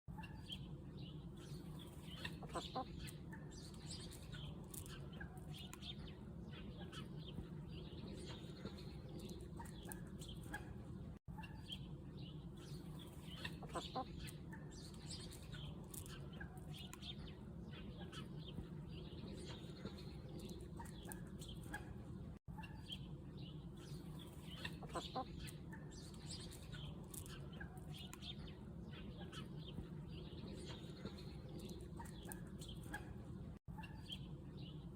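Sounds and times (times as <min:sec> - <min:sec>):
chickens clucking: 0:01.7 - 0:05.9, 0:08.0 - 0:11.9, 0:12.9 - 0:17.1, 0:24.1 - 0:34.3.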